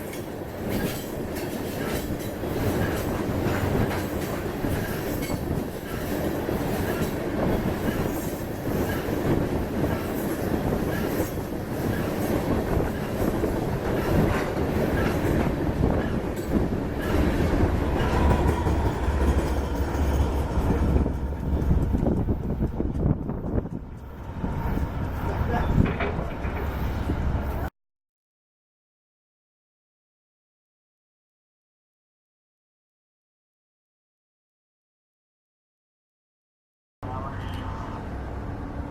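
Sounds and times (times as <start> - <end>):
deep train rumble: 0.0 - 27.7, 37.0 - 38.9
train wheels clacking on rails: 0.0 - 27.7.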